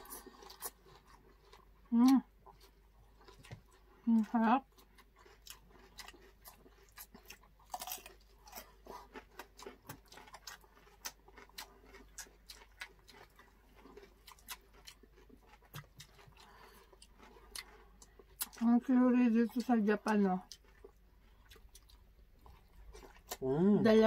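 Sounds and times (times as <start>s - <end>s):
wet chewing mouth clicks: 9.0s - 18.6s, 19.6s - 23.5s.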